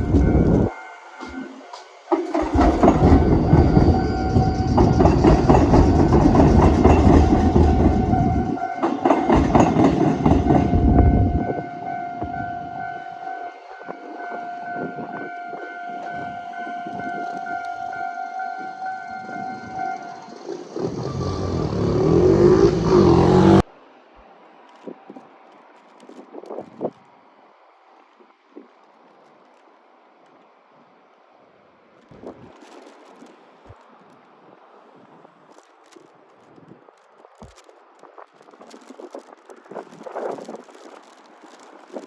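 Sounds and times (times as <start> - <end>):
train wheels clattering over crossing: 0.0 - 11.7, 19.3 - 23.6.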